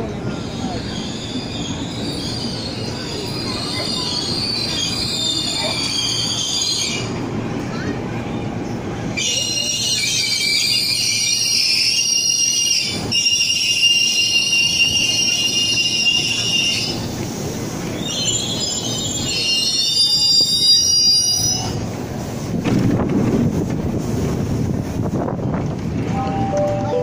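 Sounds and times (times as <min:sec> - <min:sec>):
train brakes squealing: 0:00.0 - 0:07.2, 0:09.1 - 0:17.2, 0:17.8 - 0:21.9.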